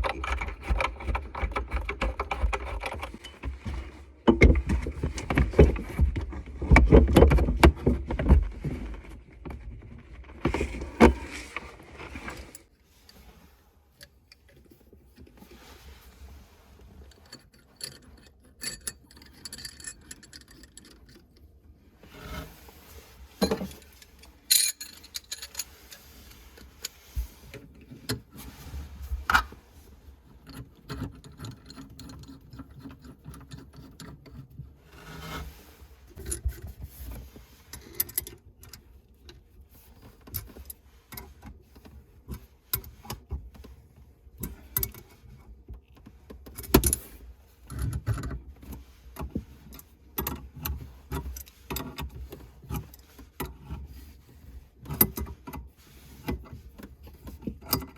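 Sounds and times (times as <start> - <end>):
tools and metal fittings clinking: 17.1 - 21.5, 23.3 - 27.0.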